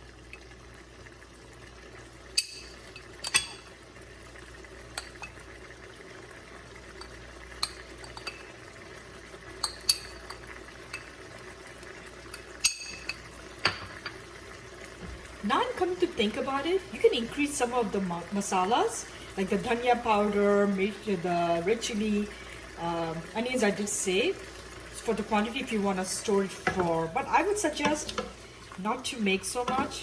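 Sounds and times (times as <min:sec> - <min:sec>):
spoon clinking against pot: 0:02.4 - 0:03.6, 0:07.0 - 0:08.5, 0:09.6 - 0:11.1, 0:12.3 - 0:14.2.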